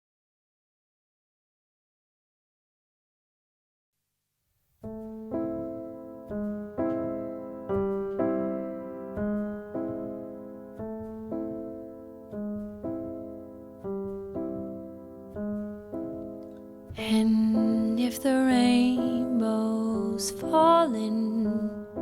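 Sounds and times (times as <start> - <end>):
piano chords: 4.8 - 22.0.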